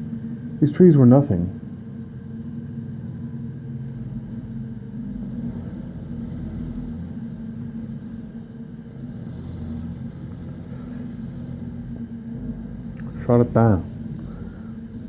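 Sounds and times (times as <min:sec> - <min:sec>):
engine humming steadily: 0:00.0 - 0:15.0.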